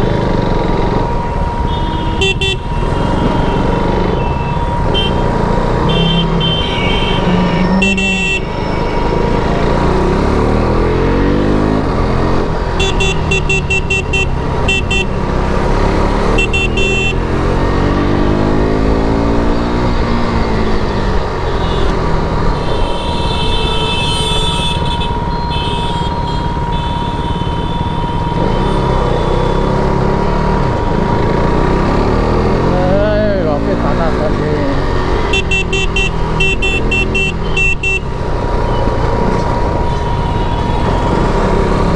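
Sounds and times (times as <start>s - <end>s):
motorcycle engine revving: 0.0s - 41.9s
horn toots: 1.7s - 9.2s, 12.8s - 15.3s, 16.2s - 17.4s, 21.5s - 29.8s, 35.2s - 38.2s.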